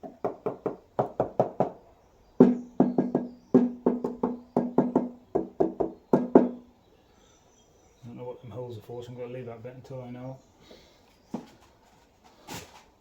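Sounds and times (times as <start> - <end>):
rapid knocks on metal panel: 0.0 - 1.8, 2.4 - 6.6.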